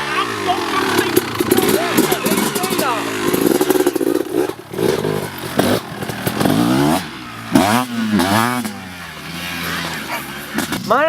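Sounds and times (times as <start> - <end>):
person speaking: 0.0 - 3.2
dirt bike engine revving: 0.0 - 11.0.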